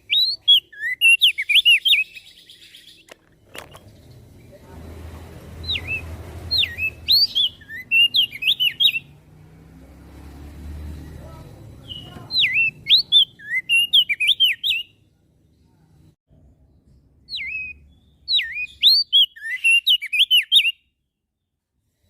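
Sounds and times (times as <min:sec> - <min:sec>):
bird singing swooping whistles: 0:00.0 - 0:03.1, 0:05.6 - 0:09.1, 0:11.8 - 0:14.9, 0:17.3 - 0:20.9.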